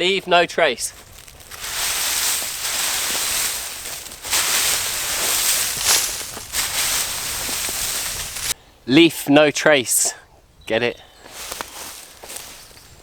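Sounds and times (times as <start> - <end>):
dry leaves and sticks crunching: 0.8 - 8.6, 11.2 - 13.0.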